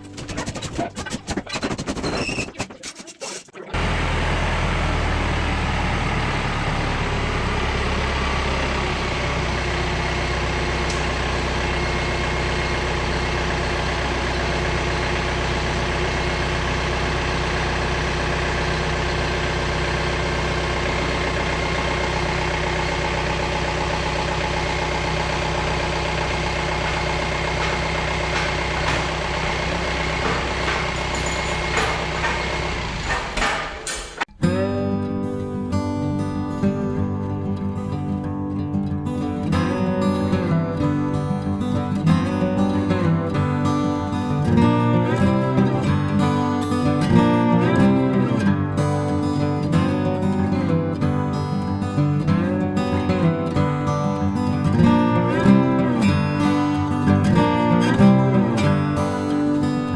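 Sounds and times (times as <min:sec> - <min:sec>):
vehicle engine idling: 0:03.8 - 0:34.0.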